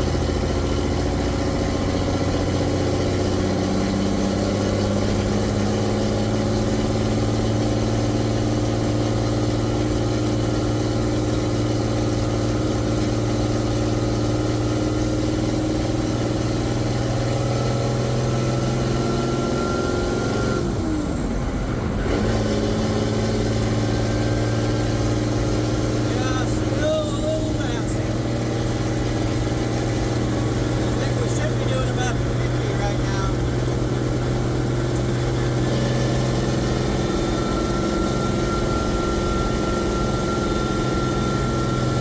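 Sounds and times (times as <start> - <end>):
truck engine running: 0.0 - 42.0
faint rising whine: 36.4 - 42.0.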